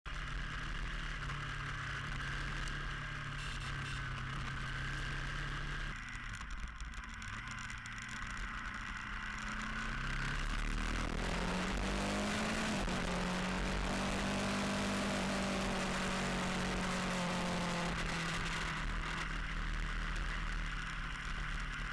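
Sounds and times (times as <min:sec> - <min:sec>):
vehicle engine: 0:00.1 - 0:21.9
road noise: 0:07.1 - 0:21.9.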